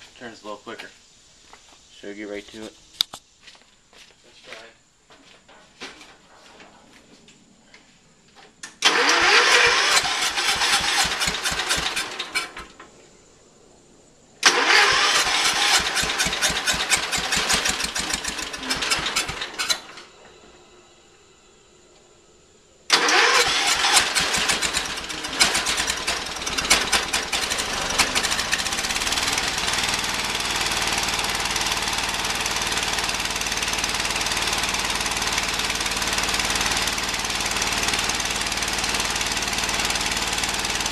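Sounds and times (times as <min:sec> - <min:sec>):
starter motor cranking: 0:08.7 - 0:12.8, 0:14.4 - 0:20.1, 0:22.9 - 0:40.9
small engine running: 0:08.8 - 0:12.8, 0:14.4 - 0:21.0, 0:22.9 - 0:40.9.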